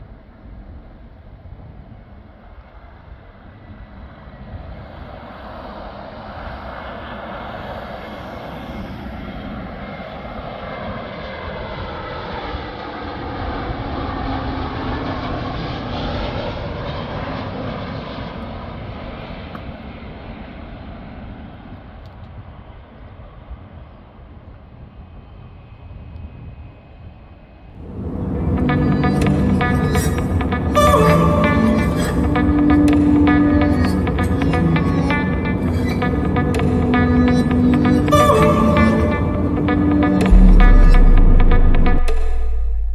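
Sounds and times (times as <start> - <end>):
jet airliner passing: 3.5 - 19.4, 27.8 - 42.9.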